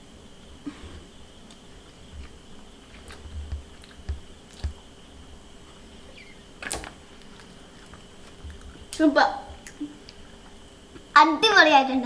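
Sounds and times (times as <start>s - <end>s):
faint steady hum: 0.0s - 12.0s
person chewing food: 1.4s - 4.9s, 5.7s - 9.0s.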